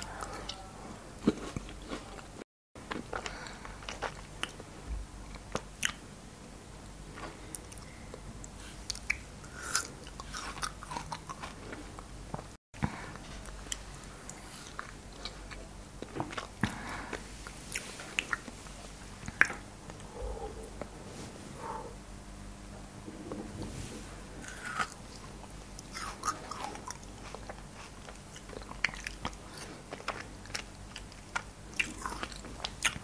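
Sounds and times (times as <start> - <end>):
chewing crunchy frozen fruit: 0.0 - 6.0, 8.6 - 19.6, 24.4 - 33.0.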